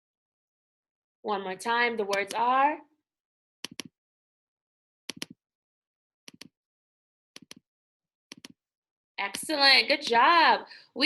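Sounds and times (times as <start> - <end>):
computer mouse double clicks: 3.6 - 3.9, 5.1 - 5.4, 6.3 - 6.5, 7.4 - 7.6.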